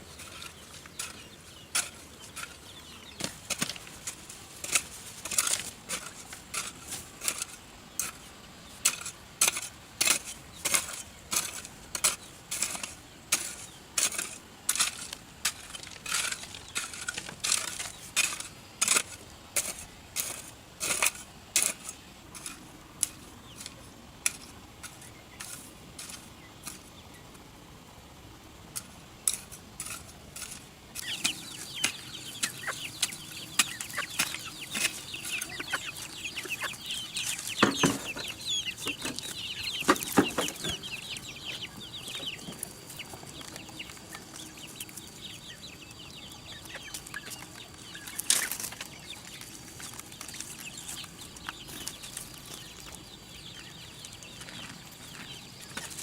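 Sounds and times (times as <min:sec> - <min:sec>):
chickens clucking: 0:00.0 - 0:56.0
high chirping calls: 0:31.0 - 0:56.0.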